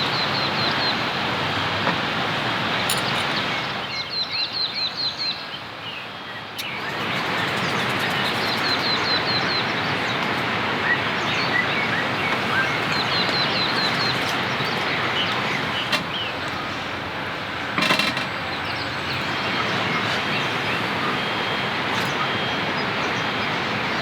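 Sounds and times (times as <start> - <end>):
bird chirping: 6.6 - 17.0.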